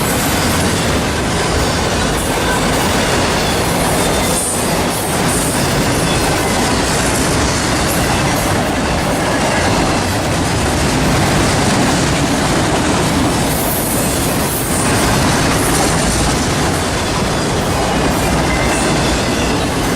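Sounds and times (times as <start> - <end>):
train wheels clattering on track: 0.0 - 19.9.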